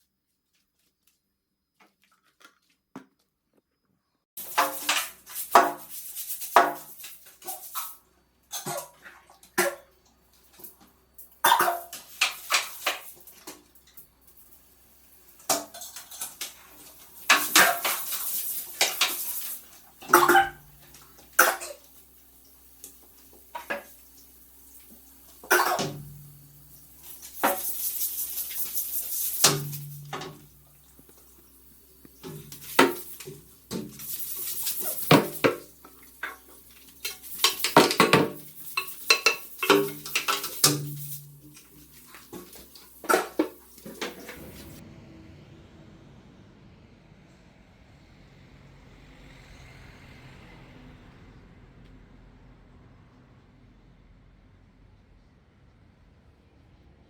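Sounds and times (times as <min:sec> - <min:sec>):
steady hiss: 0:20.7 - 0:44.8
dishes and utensils clattering: 0:25.5 - 0:26.2, 0:37.0 - 0:44.8.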